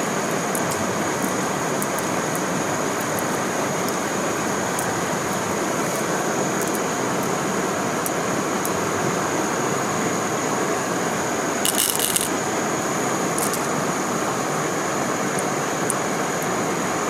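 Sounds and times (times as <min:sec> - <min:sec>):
stream water rushing: 0:00.1 - 0:17.0.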